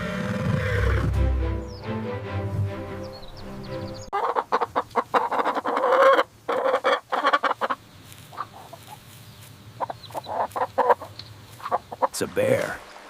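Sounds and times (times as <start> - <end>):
chicken clucking: 3.9 - 12.1.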